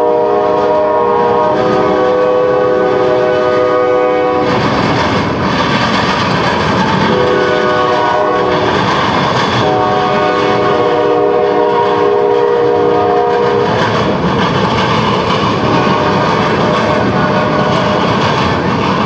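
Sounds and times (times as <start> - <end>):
locomotive air horn: 0.0 - 4.6, 7.1 - 8.9, 9.5 - 13.8, 15.6 - 18.0
passing train rumble and clatter: 0.0 - 19.0.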